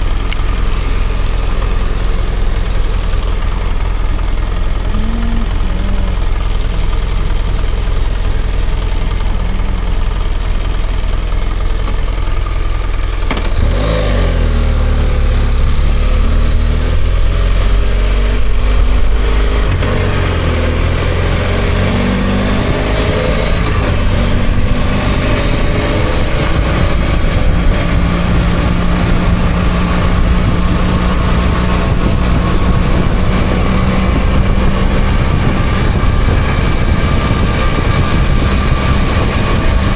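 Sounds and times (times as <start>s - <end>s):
motorcycle engine running: 0.0s - 39.9s
steady rushing noise: 15.0s - 39.9s.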